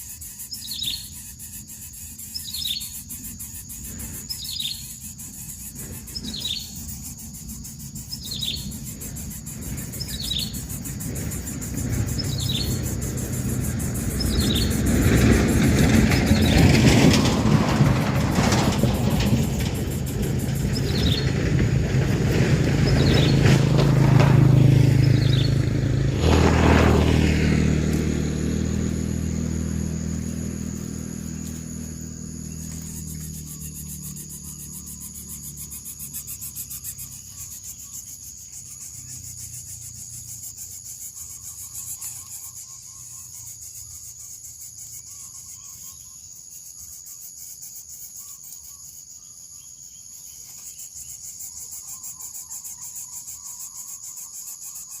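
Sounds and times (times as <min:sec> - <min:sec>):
insects buzzing: 0:00.0 - 0:55.0
vehicle engine passing: 0:05.8 - 0:41.9.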